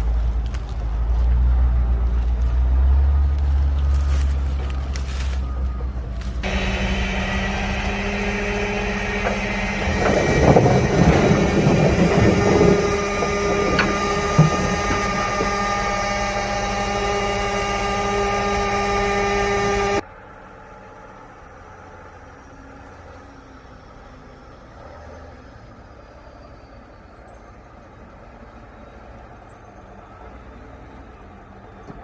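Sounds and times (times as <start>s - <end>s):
truck engine running: 0.0s - 26.2s.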